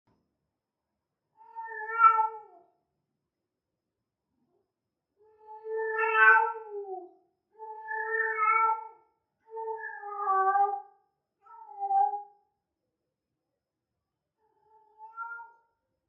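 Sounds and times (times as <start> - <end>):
cat yowling: 1.5 - 2.6, 5.8 - 7.0, 7.9 - 8.9, 9.7 - 10.9.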